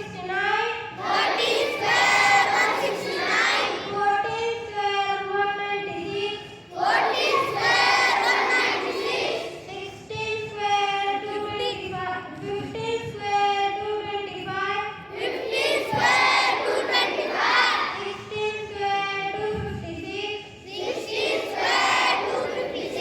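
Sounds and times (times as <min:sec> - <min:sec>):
children singing in unison: 0:01.0 - 0:04.0, 0:06.7 - 0:09.7, 0:15.1 - 0:18.3, 0:20.7 - 0:23.0.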